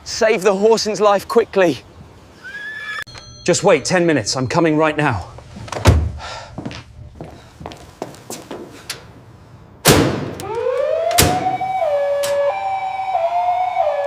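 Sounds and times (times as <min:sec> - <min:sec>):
two-tone emergency siren wail: 0:10.4 - 0:14.0.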